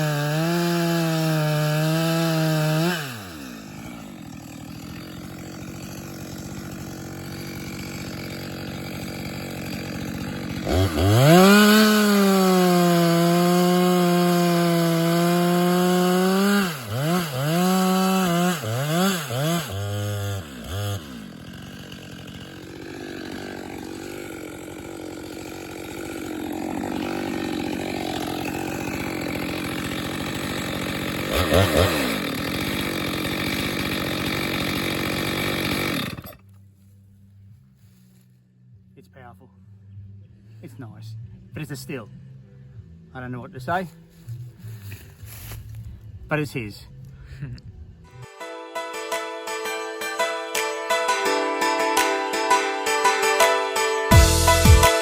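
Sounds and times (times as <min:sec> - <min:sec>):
chainsaw cutting wood: 0:00.0 - 0:36.5, 0:43.6 - 0:46.0, 0:48.2 - 0:55.0.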